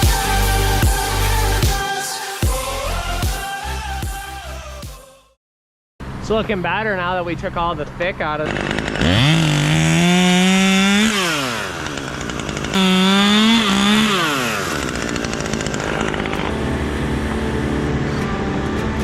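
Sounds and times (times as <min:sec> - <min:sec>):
chainsaw engine revving: 0:08.2 - 0:18.1.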